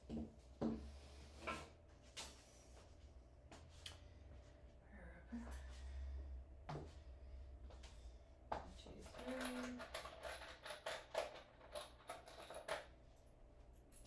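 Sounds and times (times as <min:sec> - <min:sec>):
faint low hum: 0:00.0 - 0:14.0
small objects clicking and knocking: 0:09.1 - 0:12.9.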